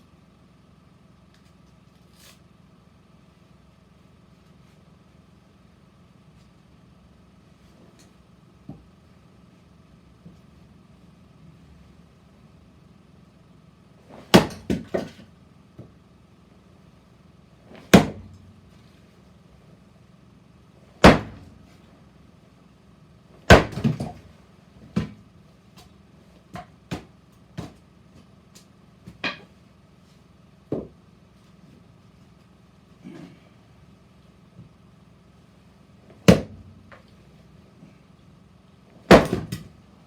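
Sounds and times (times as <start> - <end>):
splitting blade striking wood: 14.3 - 15.1, 21.0 - 21.5, 23.5 - 24.2, 39.1 - 39.7.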